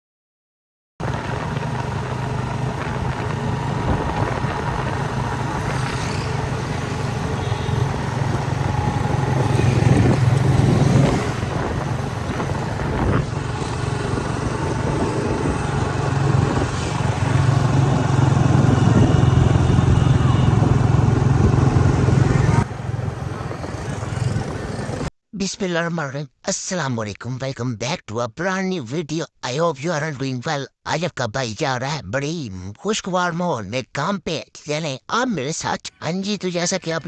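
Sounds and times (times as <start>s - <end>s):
motorcycle engine running: 1.0s - 25.1s.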